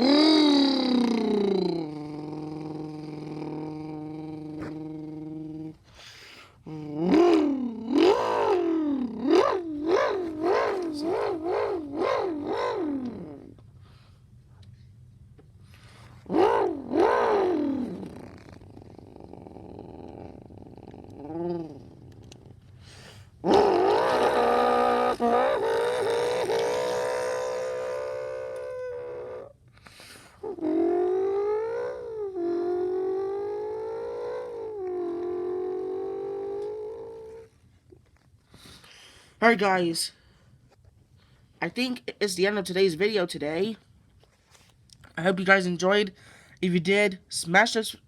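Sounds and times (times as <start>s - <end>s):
boy imitating car engine revs: 0.0s - 5.7s, 6.7s - 13.6s, 16.3s - 20.4s, 23.4s - 29.5s.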